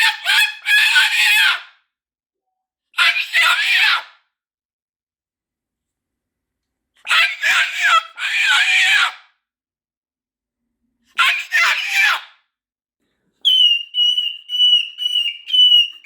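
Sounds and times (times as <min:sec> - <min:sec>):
cockatoo screaming: 0:00.0 - 0:01.7, 0:03.0 - 0:04.2, 0:07.1 - 0:09.3, 0:11.2 - 0:12.4, 0:13.4 - 0:16.0.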